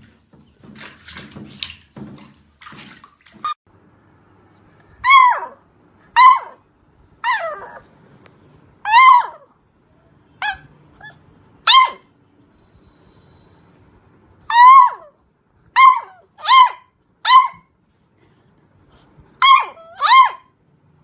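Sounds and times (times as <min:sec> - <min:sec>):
dog yelping barks: 0:05.0 - 0:06.6, 0:07.2 - 0:07.8, 0:08.8 - 0:09.6, 0:10.4 - 0:12.1, 0:14.5 - 0:17.7, 0:19.4 - 0:20.5.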